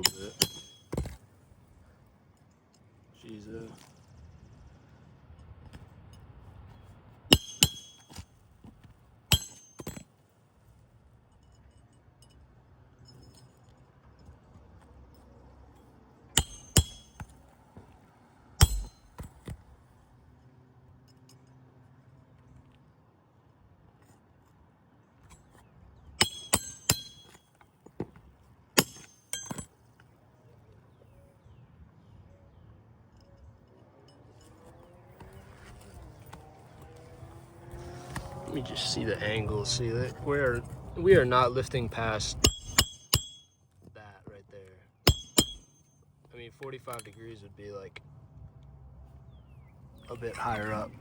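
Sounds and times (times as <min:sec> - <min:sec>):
metal tools clinking: 0:00.0 - 0:01.2, 0:07.3 - 0:08.2, 0:09.3 - 0:10.0, 0:16.4 - 0:17.3, 0:18.6 - 0:19.6, 0:26.2 - 0:28.1, 0:28.8 - 0:29.7, 0:41.8 - 0:43.5, 0:45.1 - 0:45.9, 0:46.8 - 0:47.3
metal tools clinking together: 0:00.0 - 0:01.2, 0:26.2 - 0:27.4, 0:28.8 - 0:29.7.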